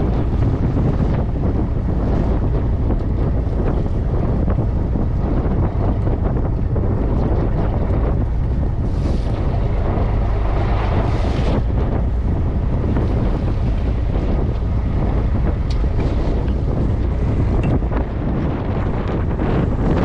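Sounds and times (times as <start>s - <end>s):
boat engine low rumble: 0.0s - 20.0s
wind buffeting microphone: 0.0s - 20.0s
water rushing: 2.6s - 20.0s
hissing water surges: 8.6s - 17.2s.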